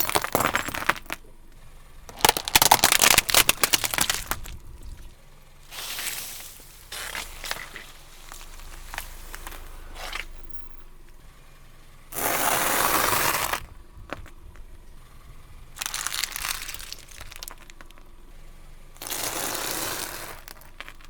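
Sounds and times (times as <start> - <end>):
objects crunching under car tyres: 0.0 - 11.4, 12.1 - 21.0
small clicks and cracks: 2.1 - 5.1, 15.8 - 18.1.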